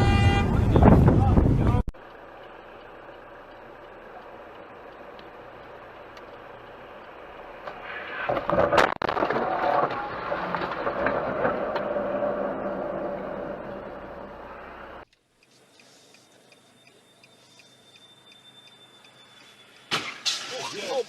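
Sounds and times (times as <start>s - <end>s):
car driving: 0.0s - 15.4s
clattering and scraping: 8.3s - 12.7s.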